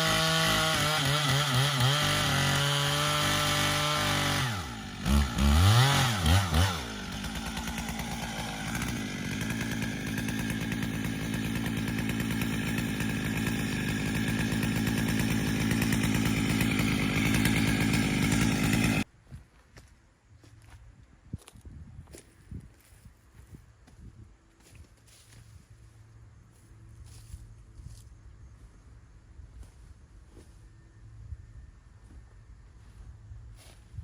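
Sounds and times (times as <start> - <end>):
chainsaw revving and idling: 0.0 - 19.1.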